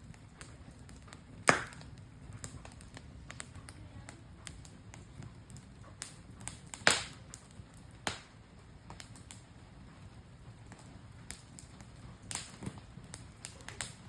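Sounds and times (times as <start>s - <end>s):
campfire crackling and popping: 0.0s - 14.0s.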